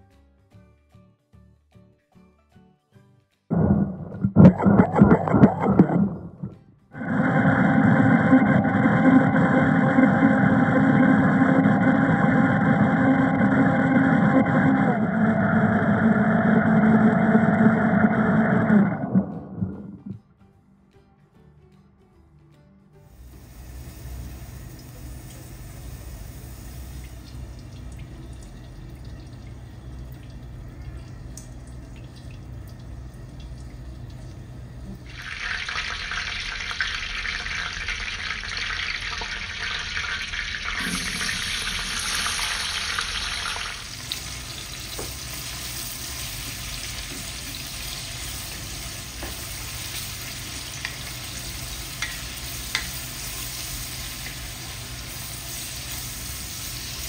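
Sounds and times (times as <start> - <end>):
onions sizzling in oil: 23.2 - 27.5, 35.1 - 57.0.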